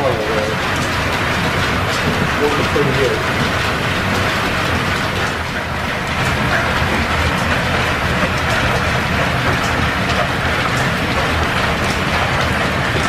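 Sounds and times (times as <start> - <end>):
steam-driven workshop machinery running: 0.0 - 13.0.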